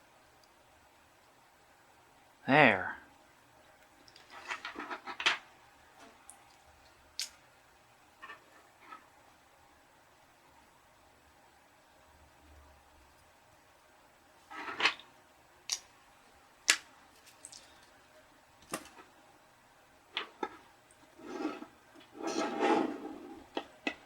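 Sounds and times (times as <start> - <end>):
small parts clicking and tapping: 16.7 - 17.9
scraping rustles: 21.2 - 23.5.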